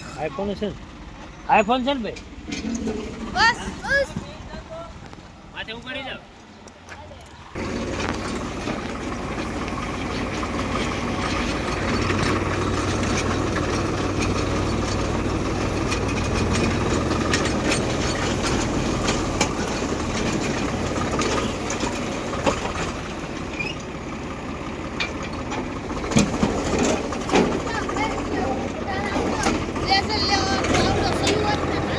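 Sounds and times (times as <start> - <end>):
tractor engine running: 0.0 - 31.9
clicks and clatter: 6.7 - 23.9.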